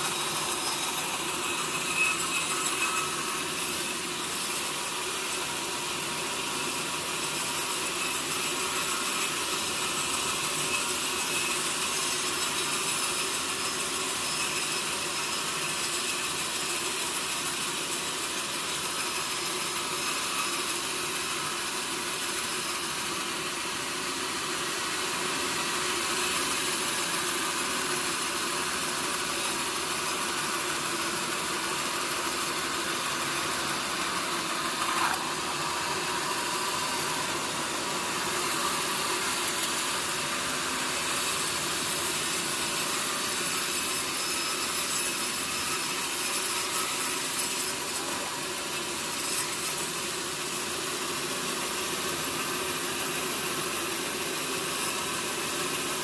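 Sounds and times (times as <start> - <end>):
sawmill saw cutting wood: 0.0 - 56.0.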